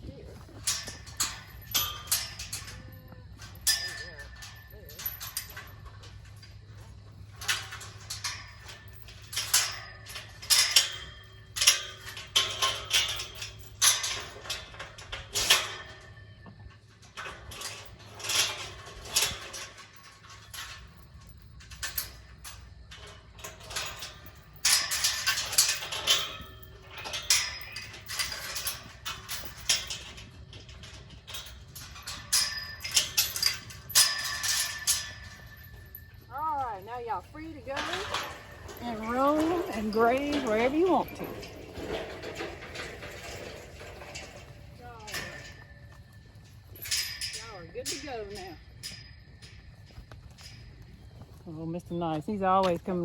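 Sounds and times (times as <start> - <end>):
metal gate chain and latch rattling: 0.3 - 53.0.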